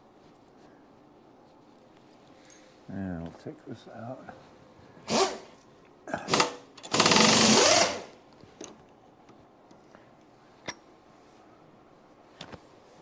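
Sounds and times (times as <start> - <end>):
handheld power tool rattling: 6.3 - 8.1.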